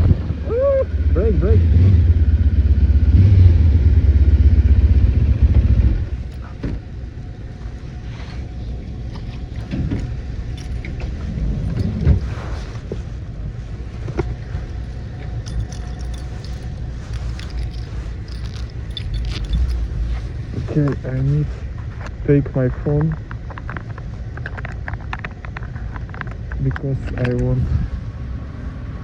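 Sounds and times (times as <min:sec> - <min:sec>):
motorcycle engine rumbling: 0:00.0 - 0:28.0
light clicks and rattles: 0:06.0 - 0:13.0, 0:13.7 - 0:27.6.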